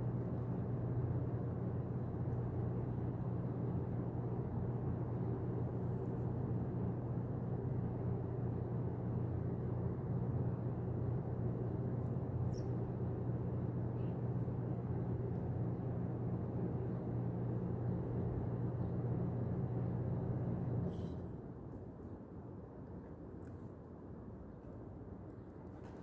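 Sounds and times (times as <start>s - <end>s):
low outdoor rumble: 0.0s - 26.0s
faint high chirp: 12.4s - 12.9s.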